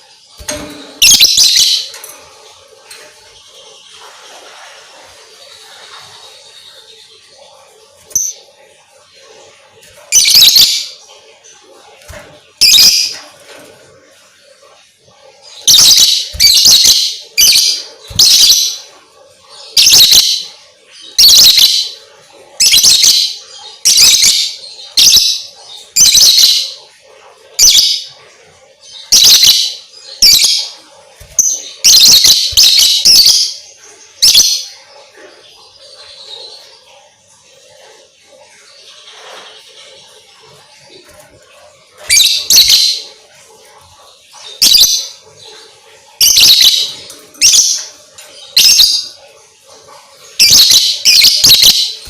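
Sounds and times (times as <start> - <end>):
bird shrill chirping: 0.4 - 2.0, 10.1 - 11.0, 12.6 - 13.2, 15.6 - 18.9, 19.8 - 20.5, 21.2 - 22.0, 29.1 - 30.5, 31.2 - 33.6, 42.1 - 43.0, 46.2 - 47.8, 50.4 - 52.0.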